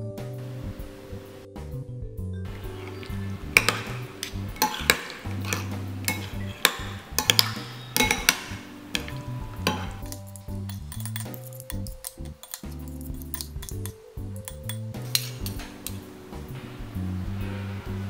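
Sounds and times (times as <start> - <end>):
lounge music: 0.0 - 18.0
metal spoon clinking ceramic bowl: 2.6 - 16.1.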